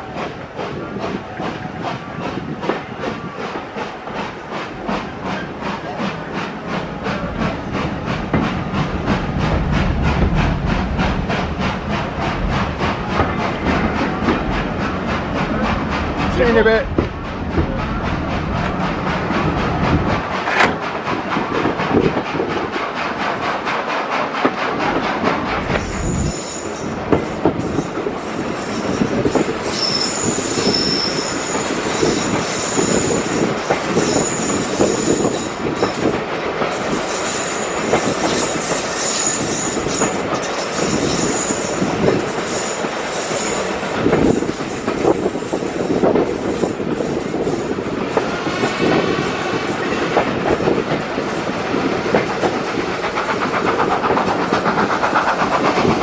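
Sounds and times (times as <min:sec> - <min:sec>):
train wheels rumbling on track: 0:00.0 - 0:56.0
wavering wheel squeal: 0:28.1 - 0:33.4
high flange squeals: 0:29.6 - 0:36.1.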